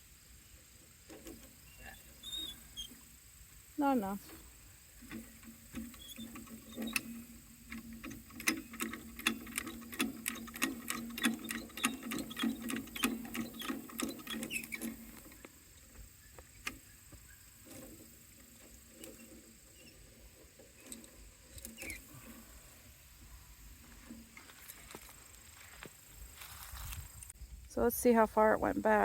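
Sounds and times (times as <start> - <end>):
ratchet clicking: 5.1 - 15.0.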